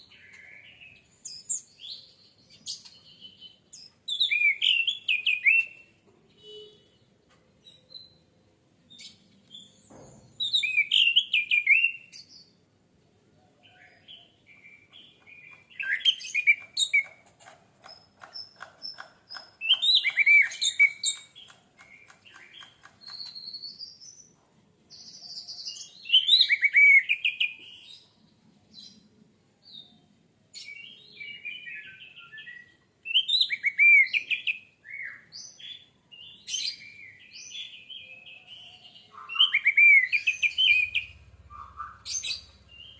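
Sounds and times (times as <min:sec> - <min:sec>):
thrush singing whistled notes: 0:04.1 - 0:05.8, 0:19.6 - 0:21.4, 0:39.2 - 0:42.9.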